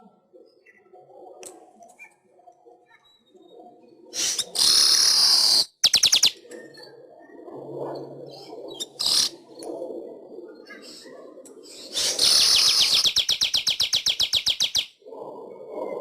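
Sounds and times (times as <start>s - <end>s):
bird buzzy wheeze: 4.2s - 5.6s
bird sharp clicks: 5.8s - 6.4s, 12.3s - 14.9s.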